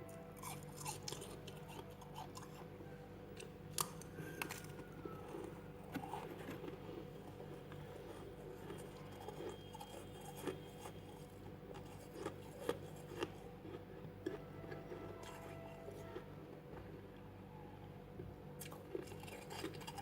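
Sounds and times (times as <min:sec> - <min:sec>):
chewing frost crunching: 0:00.1 - 0:02.7, 0:03.4 - 0:17.0, 0:18.6 - 0:20.0.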